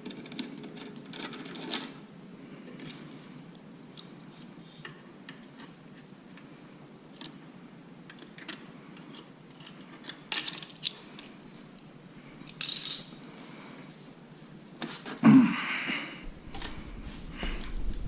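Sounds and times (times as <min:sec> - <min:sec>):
metal tools clinking and rattling: 0:09.6 - 0:11.3, 0:12.4 - 0:13.2.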